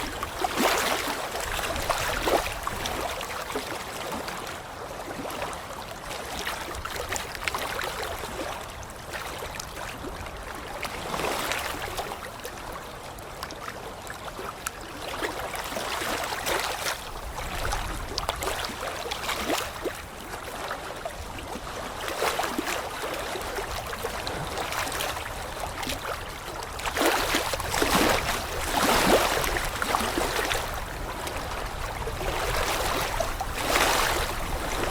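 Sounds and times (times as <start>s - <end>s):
running water rushing: 0.0s - 4.4s, 15.1s - 34.9s.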